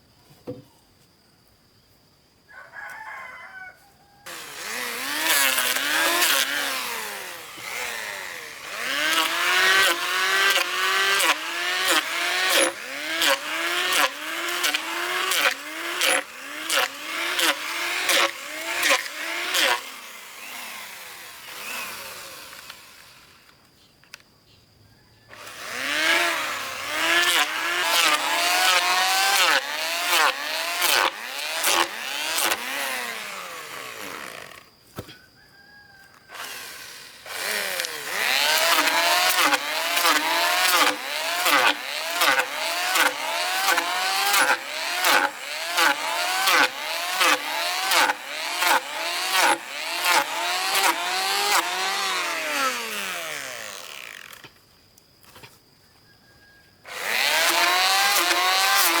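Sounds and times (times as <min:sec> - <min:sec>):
chainsaw engine revving: 0:04.3 - 0:23.5, 0:25.3 - 0:34.7, 0:36.3 - 0:54.5, 0:56.9 - 0:59.0.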